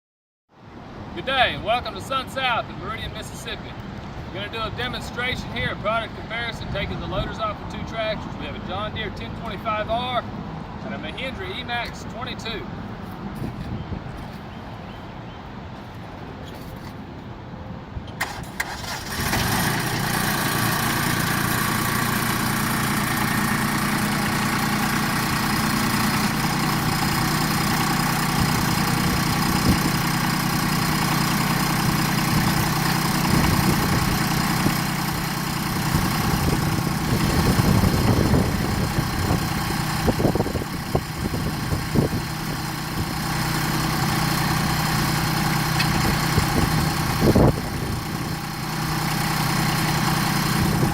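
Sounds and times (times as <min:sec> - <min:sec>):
tractor engine cranking and idling: 0:04.0 - 0:14.5, 0:18.1 - 0:50.9.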